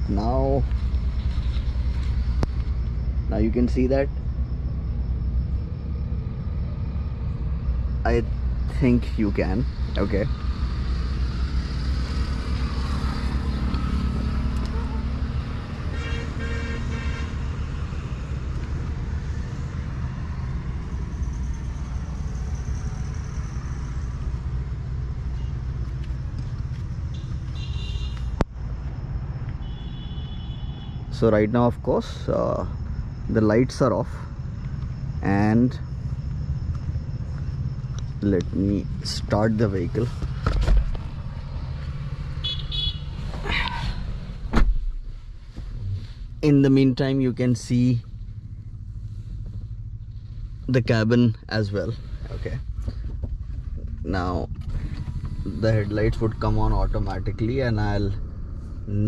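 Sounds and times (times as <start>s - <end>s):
low rumble of traffic: 0.0s - 59.0s
diesel engine idling: 45.1s - 59.0s.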